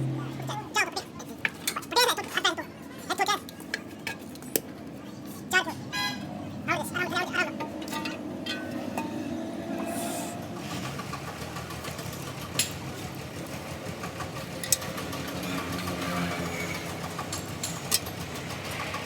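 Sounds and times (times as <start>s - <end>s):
engine running steadily: 7.4s - 19.0s.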